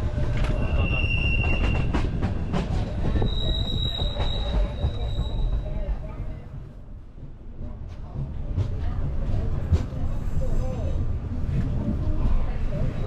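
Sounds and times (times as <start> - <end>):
rail clicks: 0.0 - 6.7, 7.5 - 13.0
train rumbling on rails: 0.0 - 13.0
train wheels squealing: 0.4 - 5.8.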